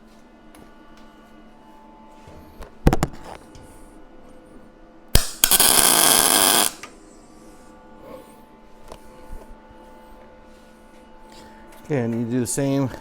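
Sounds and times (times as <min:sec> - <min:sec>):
brief loud burst: 0:05.2 - 0:06.8
sharp click: 0:05.2 - 0:06.9
welding arc crackle: 0:05.2 - 0:06.9.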